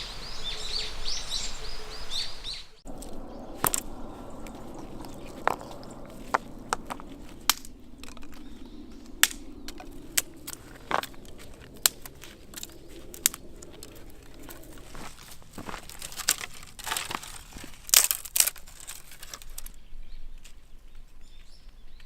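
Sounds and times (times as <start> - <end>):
small birds chirping: 0.0 - 17.6
campfire crackling and popping: 2.9 - 19.7.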